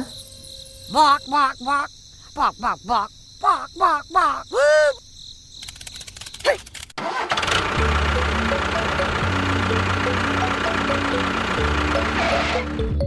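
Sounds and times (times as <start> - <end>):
faint clicks: 5.6 - 7.0
small engine running: 7.0 - 12.9.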